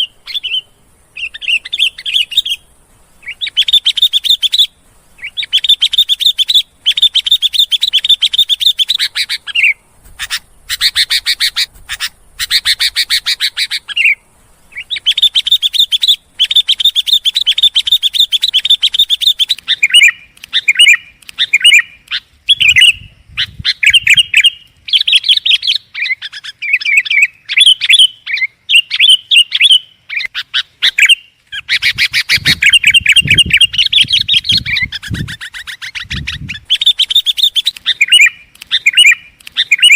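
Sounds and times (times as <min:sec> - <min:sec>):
bulbul chattering calls: 0:00.0 - 0:39.9.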